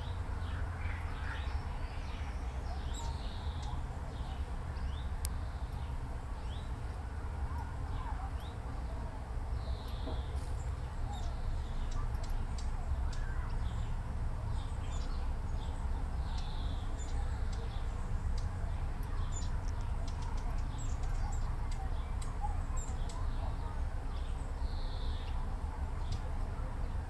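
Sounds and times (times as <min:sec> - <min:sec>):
sharp ticking bird calls: 0:00.0 - 0:06.9, 0:09.6 - 0:10.4, 0:11.0 - 0:23.5
songbirds chirping: 0:00.0 - 0:27.0.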